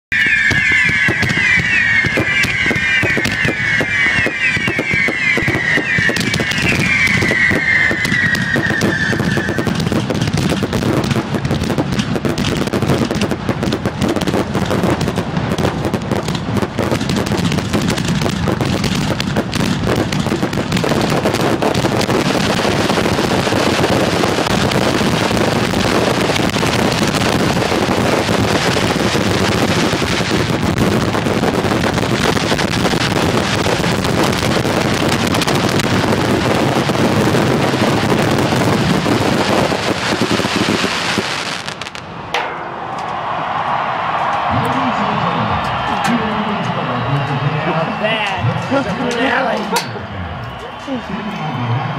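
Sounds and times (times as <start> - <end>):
falling shrill whistles: 0.1 - 9.8
fireworks bangs and crackling: 0.1 - 51.9.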